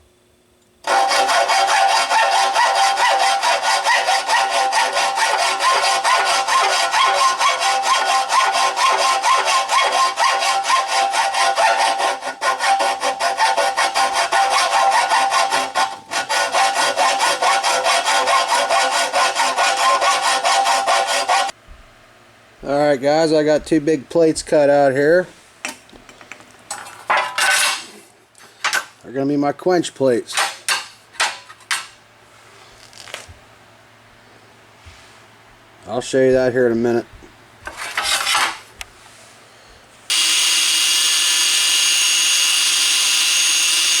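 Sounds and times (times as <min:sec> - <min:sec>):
saw cutting aluminum plate: 0:00.8 - 0:21.5, 0:40.1 - 0:44.0.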